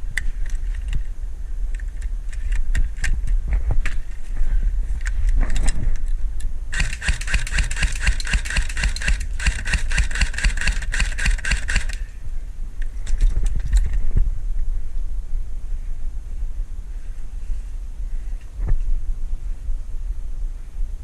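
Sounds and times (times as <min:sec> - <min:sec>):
wind on microphone: 0:00.0 - 0:21.0
scattered clicks: 0:05.0 - 0:12.1
airsoft gun full-auto firing: 0:06.7 - 0:12.1.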